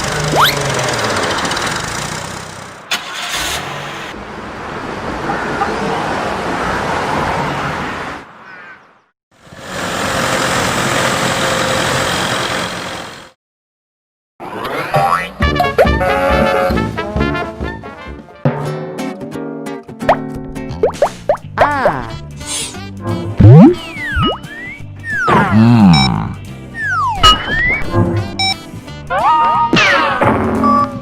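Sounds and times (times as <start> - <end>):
vehicle engine running loudly: 0.0 - 4.1, 9.4 - 13.4.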